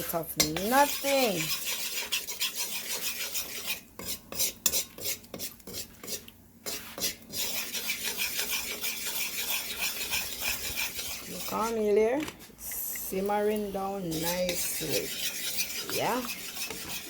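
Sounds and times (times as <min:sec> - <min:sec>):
hiss of frying in hot oil: 0:00.0 - 0:11.7
spoon scraping cooking pot: 0:00.0 - 0:17.0.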